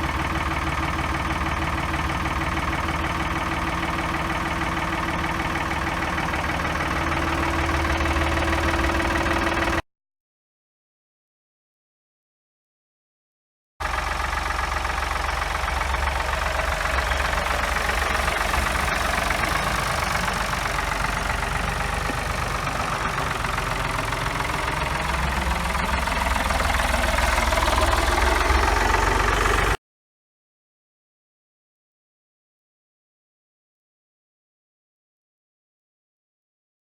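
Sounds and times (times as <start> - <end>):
tractor engine idling: 0.0 - 9.8, 13.8 - 29.8.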